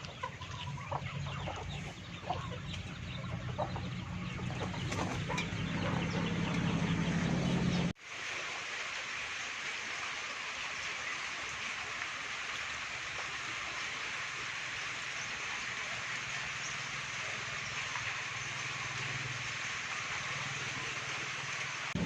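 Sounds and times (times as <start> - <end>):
chickens clucking: 0.0 - 7.9.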